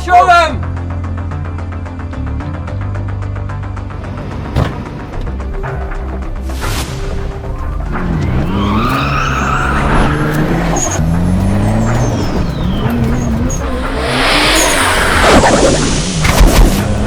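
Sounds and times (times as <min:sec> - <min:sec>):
car engine revving: 0:07.5 - 0:17.0
loud rush of noise: 0:11.8 - 0:17.0.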